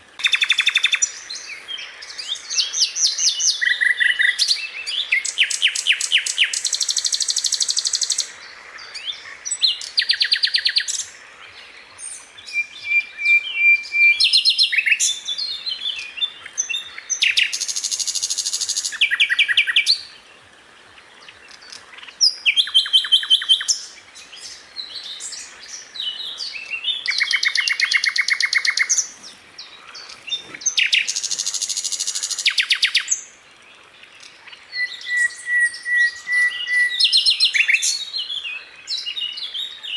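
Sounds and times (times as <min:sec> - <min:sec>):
bird whistled notes and chirps: 0:12.0 - 0:20.1, 0:22.2 - 0:33.2, 0:34.7 - 0:39.9.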